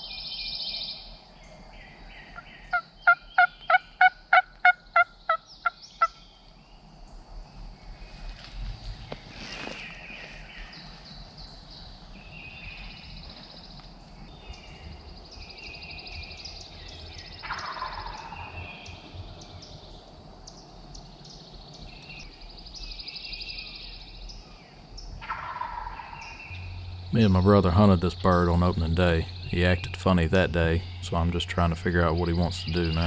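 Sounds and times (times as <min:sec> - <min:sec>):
turkey gobbling: 0:02.7 - 0:06.1, 0:17.4 - 0:18.4, 0:25.2 - 0:33.0
high trilling: 0:26.5 - 0:33.0.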